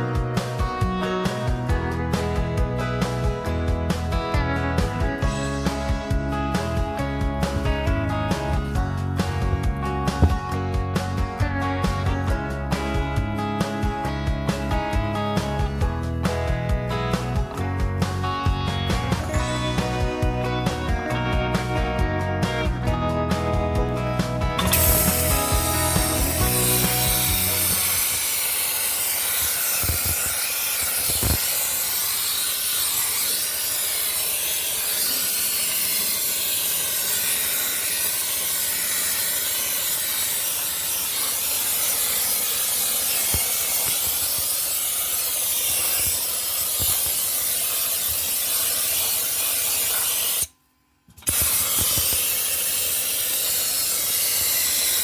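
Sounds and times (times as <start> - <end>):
blasting nozzle hissing: 5.2 - 13.9, 22.4 - 50.5, 51.2 - 55.0.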